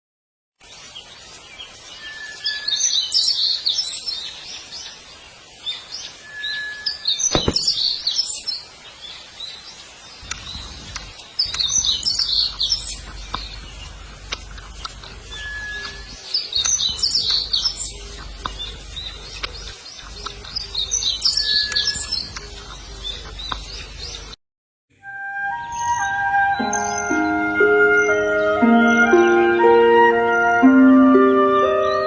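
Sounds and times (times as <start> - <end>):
birds chirping: 3.3 - 24.4
sharp click: 7.3 - 8.0.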